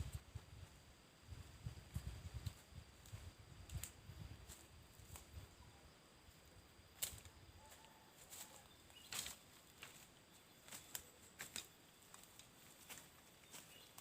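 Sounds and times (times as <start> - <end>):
small birds chip calls: 7.6 - 12.1, 12.8 - 14.0.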